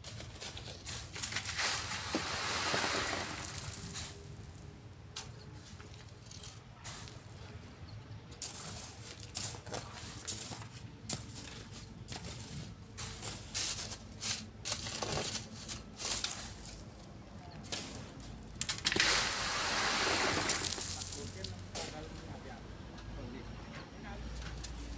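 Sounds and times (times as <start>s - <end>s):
shovels scraping sand: 0.0s - 4.6s, 8.4s - 16.9s, 17.7s - 22.1s.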